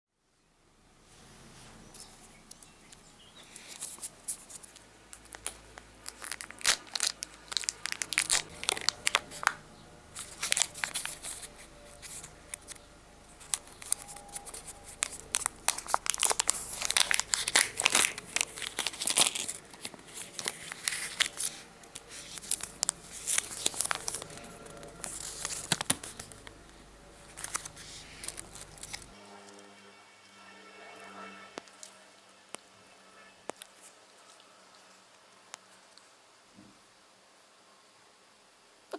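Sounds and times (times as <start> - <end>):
plastic wrapping torn and crinkled: 3.5 - 29.2.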